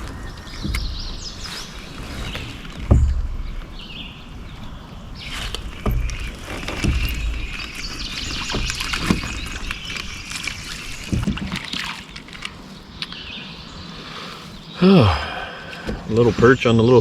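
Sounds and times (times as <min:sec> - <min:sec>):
knocks on kayak: 0:00.0 - 0:03.9, 0:05.2 - 0:09.8, 0:15.8 - 0:16.6
birds chirping faintly: 0:00.0 - 0:17.0
water splashing: 0:00.0 - 0:17.0.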